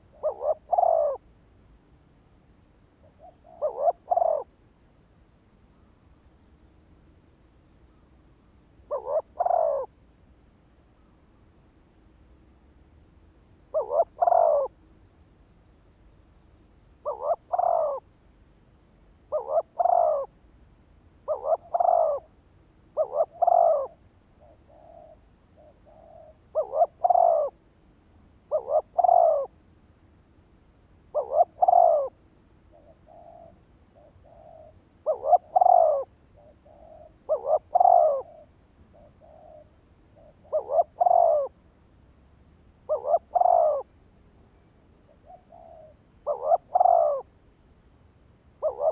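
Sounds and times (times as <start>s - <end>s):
dove cooing: 0.0s - 1.3s, 3.0s - 4.5s, 8.9s - 10.0s, 13.7s - 14.8s, 17.0s - 18.1s, 19.3s - 20.4s, 21.3s - 22.3s, 23.0s - 27.6s, 28.5s - 29.6s, 31.1s - 41.6s, 42.9s - 43.9s, 45.0s - 47.3s, 48.6s - 48.9s.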